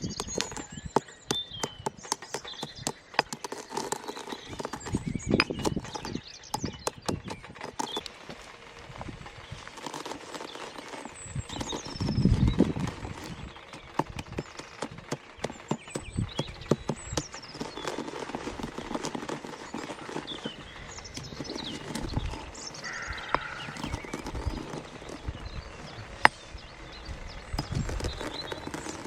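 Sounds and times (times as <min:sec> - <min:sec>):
clicks and knocks: 0:00.0 - 0:08.4
small birds chirping: 0:00.0 - 0:29.0.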